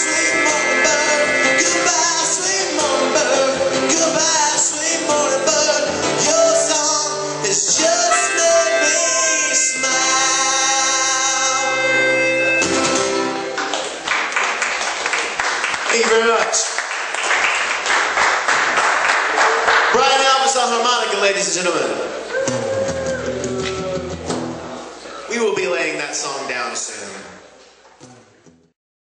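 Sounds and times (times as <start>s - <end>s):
person singing: 0.0s - 12.6s, 22.3s - 24.6s
harmonica: 0.0s - 13.6s
acoustic guitar: 0.0s - 14.0s, 21.8s - 25.3s, 27.1s - 28.8s.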